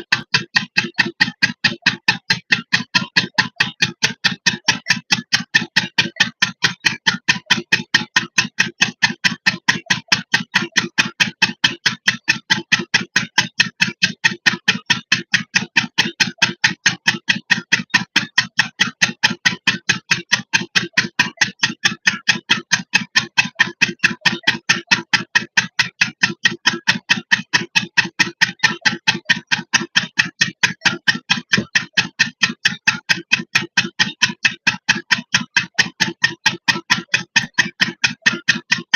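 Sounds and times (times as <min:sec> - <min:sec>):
diesel engine running a pump: 0:00.0 - 0:38.9.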